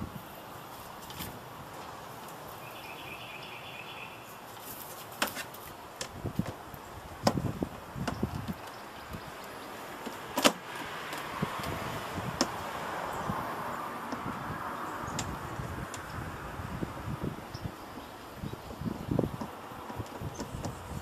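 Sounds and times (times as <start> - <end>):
clicks and knocks of computer parts: 10.0 - 11.8.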